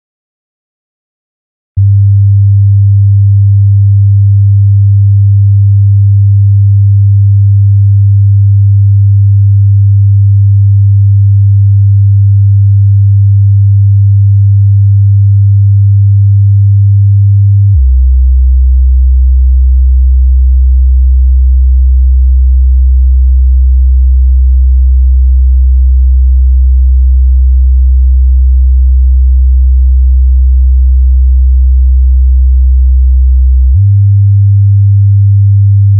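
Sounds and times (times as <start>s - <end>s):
low sine-wave hum: 1.8s - 35.9s.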